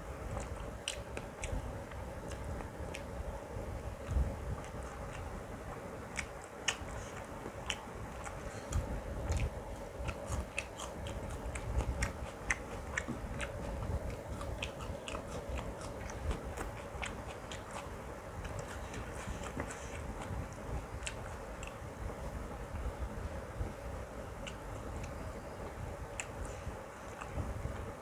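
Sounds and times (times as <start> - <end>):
person chewing with mouth sounds: 0.0 - 28.0
steady low hum: 0.0 - 28.0.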